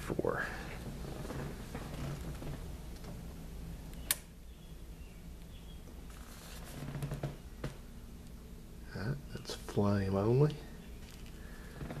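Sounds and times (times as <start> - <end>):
lamp switch click: 3.9 - 4.3
faint handling sounds: 5.8 - 8.3, 10.4 - 12.0.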